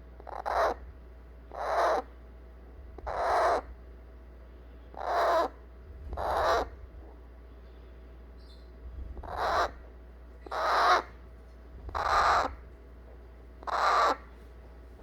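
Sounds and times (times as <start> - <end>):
parrot chick harsh begging calls: 0.2 - 0.8, 1.5 - 2.1, 3.0 - 3.8, 4.9 - 5.6, 6.2 - 6.7, 9.2 - 9.8, 10.4 - 11.2, 11.9 - 12.6, 13.6 - 14.3.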